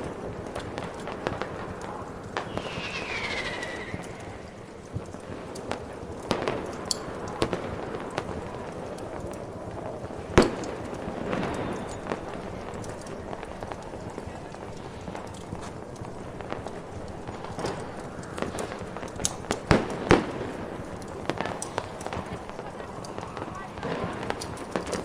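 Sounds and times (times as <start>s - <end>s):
fireworks popping and crackling: 0.0s - 25.0s
firework whistle: 2.4s - 5.2s.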